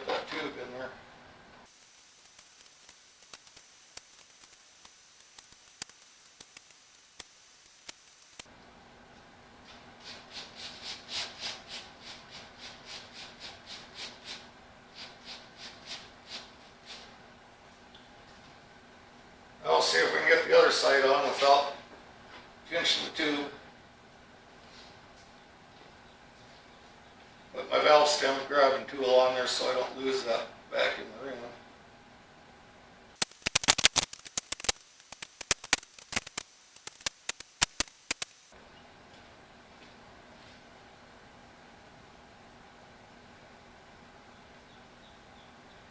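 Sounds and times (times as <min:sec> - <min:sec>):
rubber rubbing in rhythmic strokes: 0:01.7 - 0:08.5, 0:33.2 - 0:38.6.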